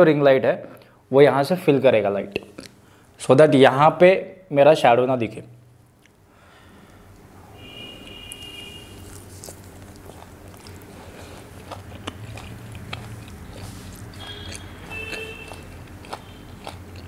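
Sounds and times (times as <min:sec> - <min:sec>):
man chewing food: 0:07.9 - 0:17.0.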